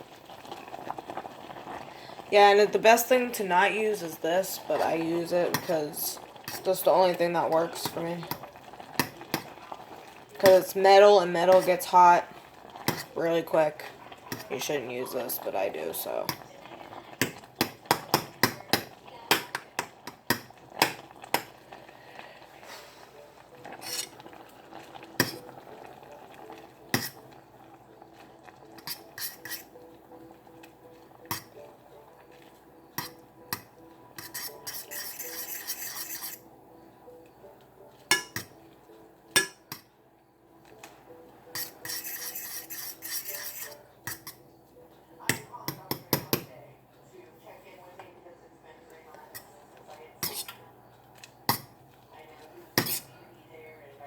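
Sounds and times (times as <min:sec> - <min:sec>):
metal utensil scraping a pan: 0:03.0 - 0:09.6, 0:10.4 - 0:12.2, 0:12.8 - 0:16.4, 0:22.6 - 0:24.4, 0:25.1 - 0:25.6, 0:26.9 - 0:27.3, 0:28.7 - 0:29.8, 0:31.2 - 0:31.6, 0:33.0 - 0:36.5, 0:41.5 - 0:44.4, 0:50.2 - 0:50.6, 0:52.7 - 0:53.2.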